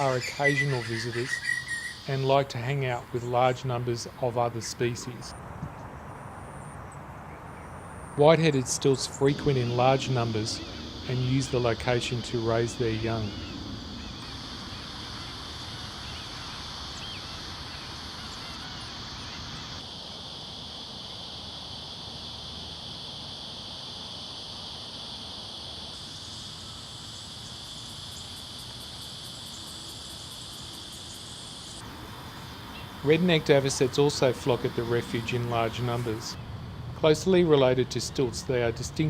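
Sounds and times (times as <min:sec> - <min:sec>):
faint bird calls: 0:00.0 - 0:02.3, 0:11.9 - 0:19.8
high insect drone: 0:00.0 - 0:05.4, 0:07.6 - 0:39.0.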